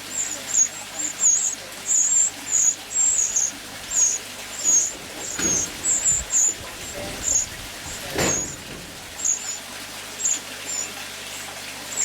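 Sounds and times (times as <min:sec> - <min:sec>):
young birds cheeping: 0:00.0 - 0:12.0
dull knock: 0:04.7 - 0:09.4.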